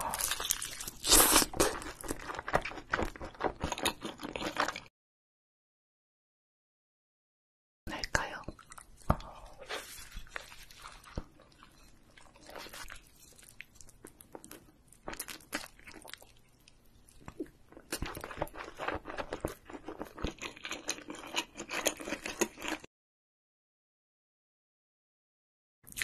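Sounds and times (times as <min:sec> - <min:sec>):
chewing and crunching: 0:00.0 - 0:04.9, 0:08.5 - 0:22.9.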